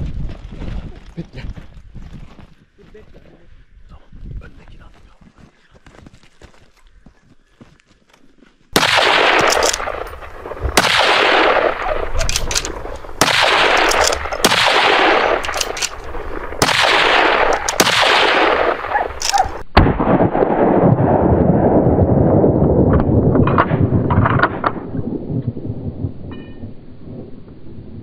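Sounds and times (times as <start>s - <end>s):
echoing gunshots: 8.8s - 21.4s.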